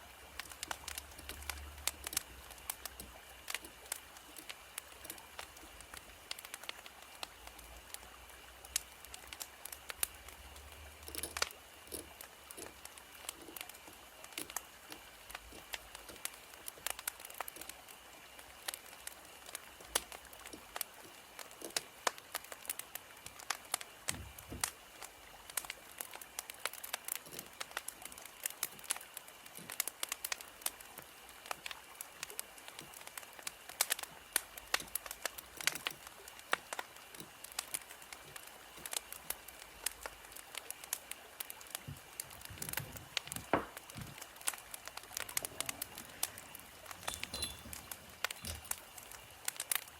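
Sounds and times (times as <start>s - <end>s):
wood fire crackling: 0.0s - 49.9s.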